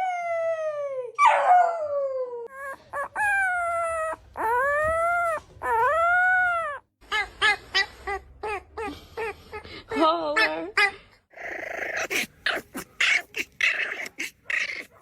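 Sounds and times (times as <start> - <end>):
dog yipping: 2.5 - 8.6, 11.4 - 15.0.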